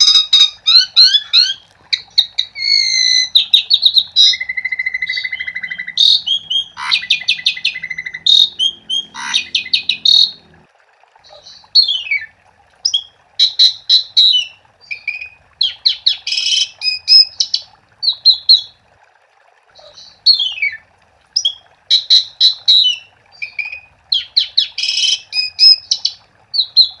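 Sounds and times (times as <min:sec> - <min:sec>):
starling singing: 0:00.0 - 0:10.4.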